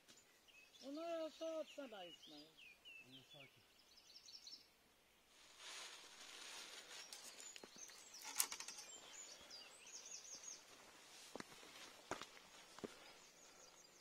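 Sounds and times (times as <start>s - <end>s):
bird chirping: 0.0s - 5.3s, 6.4s - 11.0s, 12.9s - 14.0s
soft rustling hiss: 5.3s - 9.0s.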